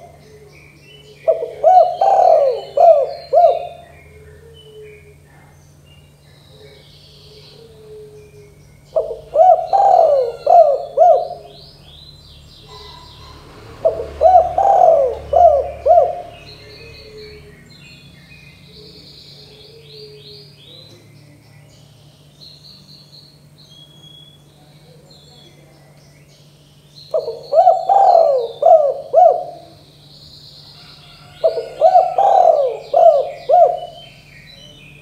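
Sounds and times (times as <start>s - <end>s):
dove cooing: 0.0s - 12.0s, 12.6s - 17.7s, 18.6s - 21.0s, 27.1s - 30.0s, 30.7s - 34.8s
small birds chirping: 0.0s - 35.0s.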